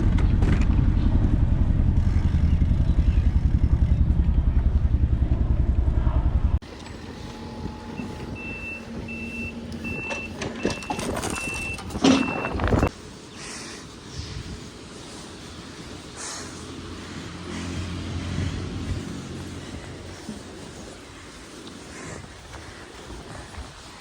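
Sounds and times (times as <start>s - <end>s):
low pulsing rumble: 0.0s - 10.0s
reversing alarm beeping: 6.8s - 13.0s.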